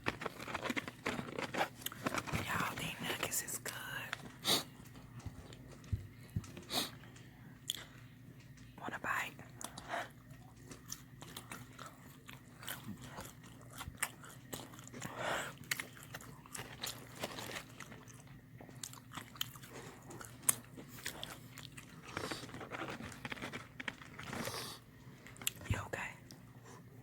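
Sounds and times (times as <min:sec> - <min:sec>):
chewing crispy fried chicken: 0:00.0 - 0:02.6, 0:09.4 - 0:25.6.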